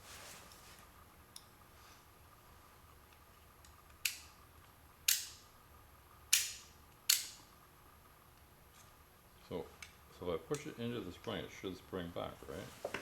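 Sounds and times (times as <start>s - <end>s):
sharp metallic clicks: 5.1s - 5.4s, 6.3s - 7.4s.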